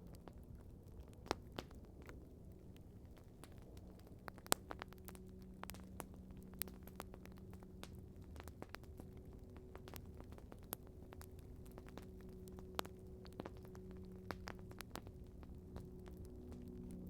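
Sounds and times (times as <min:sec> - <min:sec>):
campfire crackling and popping: 0:00.0 - 0:17.0
faint low hum: 0:00.0 - 0:17.0.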